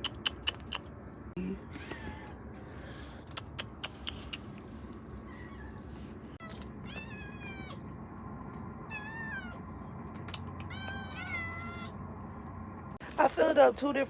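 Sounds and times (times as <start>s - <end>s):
cat meowing: 5.2s - 5.8s, 6.4s - 7.8s, 8.9s - 9.6s, 10.6s - 12.0s.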